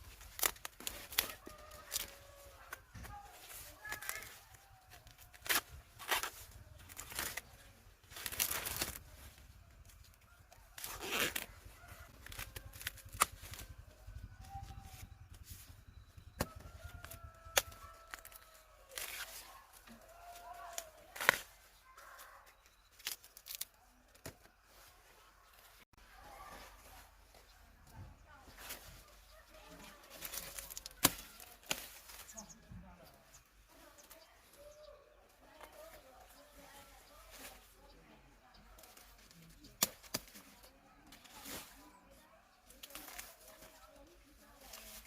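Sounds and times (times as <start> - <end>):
leaves and stalks torn by hand: 0.0 - 15.4, 16.4 - 24.9, 28.5 - 32.5, 38.8 - 45.0.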